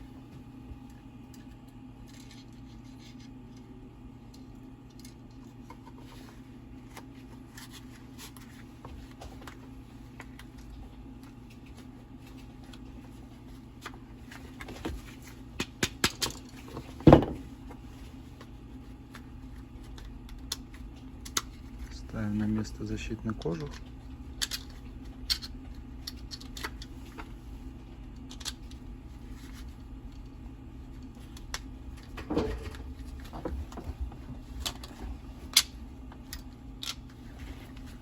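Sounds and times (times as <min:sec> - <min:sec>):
low steady hum: 0:00.0 - 0:38.0
clicks and knocks of metal parts: 0:15.6 - 0:17.4, 0:24.4 - 0:26.9.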